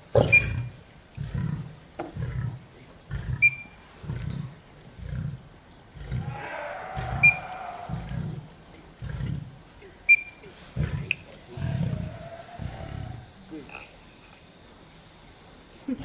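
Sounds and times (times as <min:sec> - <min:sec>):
lion roaring grunts: 0:06.0 - 0:09.6, 0:10.5 - 0:13.4.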